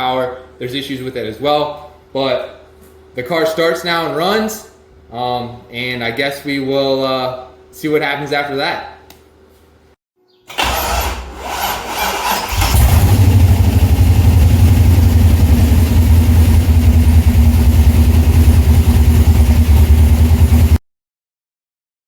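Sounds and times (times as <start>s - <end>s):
car engine cranking and starting: 10.5s - 20.8s
loud engine running: 10.6s - 20.8s.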